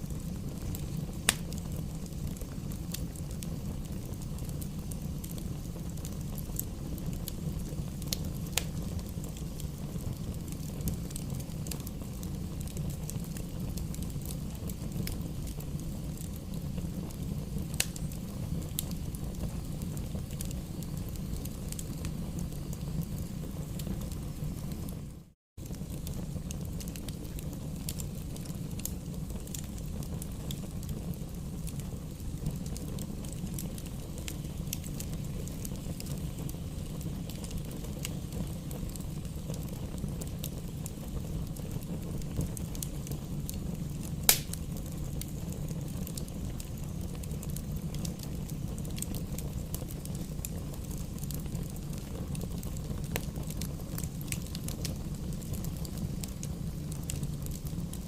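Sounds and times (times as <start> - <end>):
fire burning in fireplace: 0.0 - 58.0
fire crackling: 0.0 - 58.0
loud wood pop: 44.3 - 44.5.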